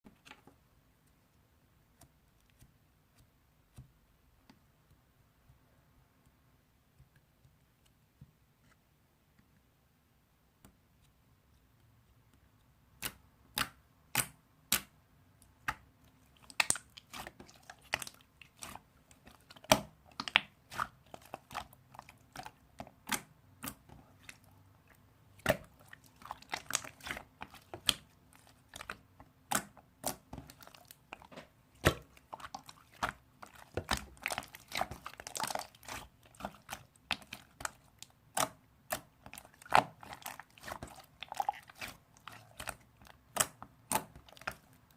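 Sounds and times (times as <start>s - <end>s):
slime squishing with popping: 12.9s - 44.9s.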